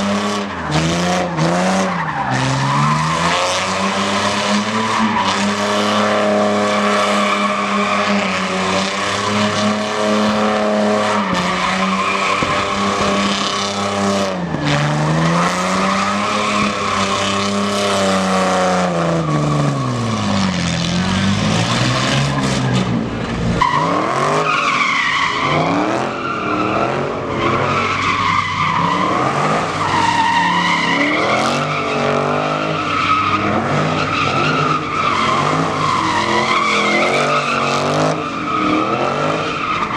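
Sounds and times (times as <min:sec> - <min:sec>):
car engine at high revs: 0:00.0 - 0:39.9
tires squealing: 0:00.0 - 0:39.9.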